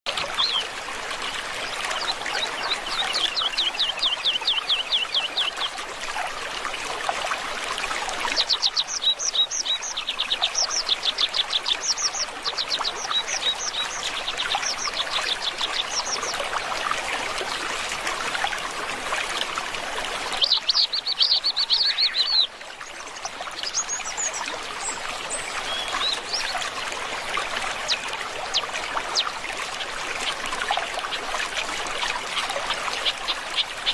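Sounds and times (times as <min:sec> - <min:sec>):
stream trickling: 0:00.1 - 0:33.9
small birds chirping: 0:20.4 - 0:22.5.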